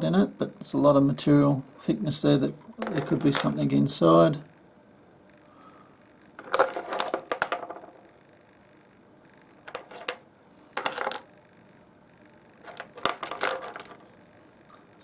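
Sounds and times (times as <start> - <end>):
stones clicking and clattering: 6.4 - 7.9, 10.8 - 11.2, 12.6 - 14.0.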